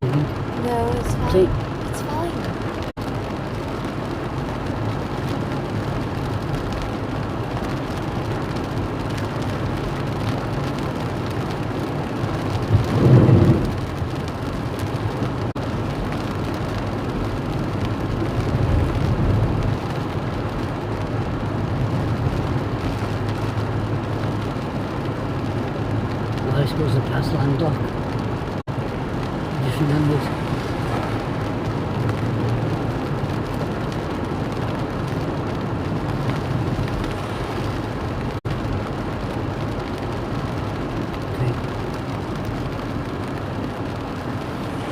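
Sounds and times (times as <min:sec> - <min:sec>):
heavy rain: 0:00.0 - 0:44.9
wind: 0:00.0 - 0:44.9
low rumble: 0:09.5 - 0:44.9.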